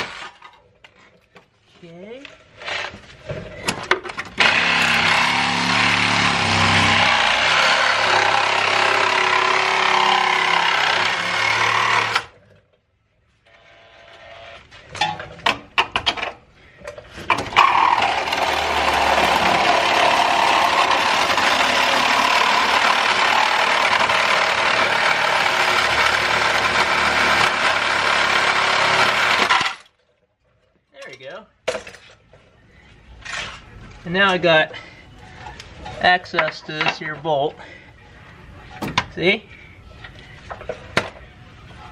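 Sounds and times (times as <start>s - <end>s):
power saw cutting sheet metal: 4.4s - 12.4s, 17.3s - 29.8s.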